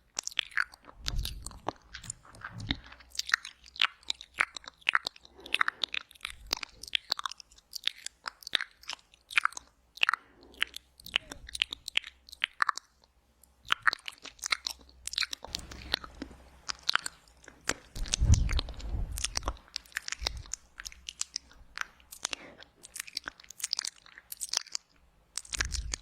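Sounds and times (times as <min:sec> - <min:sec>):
lip smacks: 0:00.0 - 0:26.0
tongue clicks: 0:00.1 - 0:26.0
mouth sucking sound: 0:17.7 - 0:21.0.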